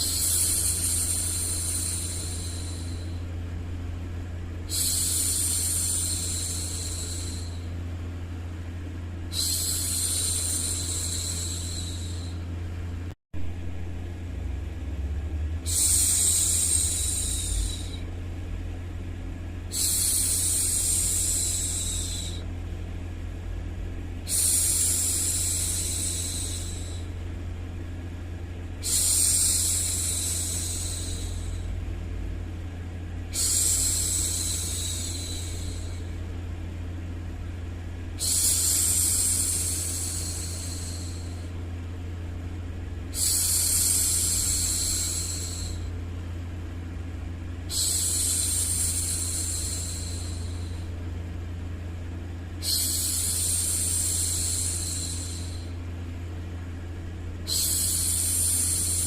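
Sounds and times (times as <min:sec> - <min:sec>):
low rumbling white noise: 0:00.0 - 0:59.0
woman making soft hushing sounds: 0:15.7 - 0:18.1.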